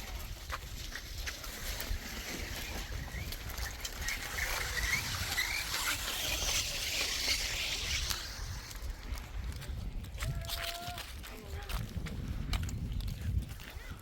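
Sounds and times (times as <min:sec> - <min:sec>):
steady low rumble: 0:03.3 - 0:13.2.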